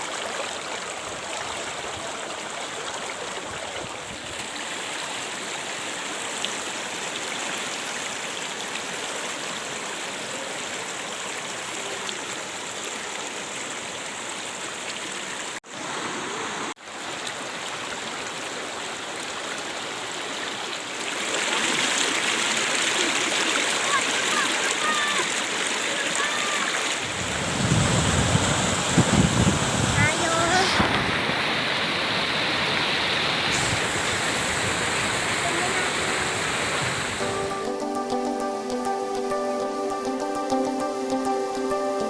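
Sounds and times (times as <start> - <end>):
waterfall rushing: 4.5 - 37.8.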